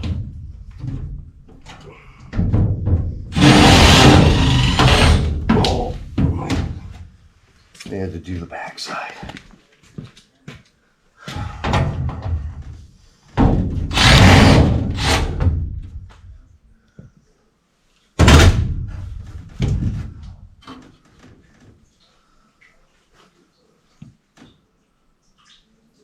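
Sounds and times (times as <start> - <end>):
equipment banging and rattling: 0.0 - 7.1.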